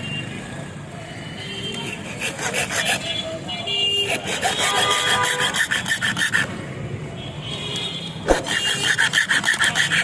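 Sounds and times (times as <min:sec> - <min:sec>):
metal being filed by hand: 0:01.8 - 0:03.4, 0:04.0 - 0:06.6, 0:08.3 - 0:10.0.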